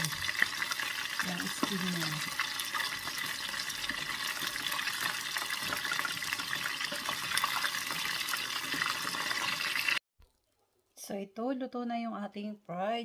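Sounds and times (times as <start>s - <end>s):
chicken wings deep-frying in oil: 0.0s - 10.0s.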